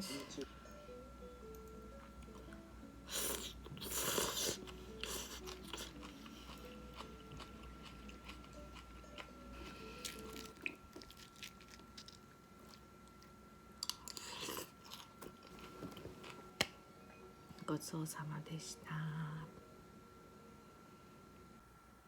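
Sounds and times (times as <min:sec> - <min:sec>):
crunchy chewing: 0:03.1 - 0:16.6.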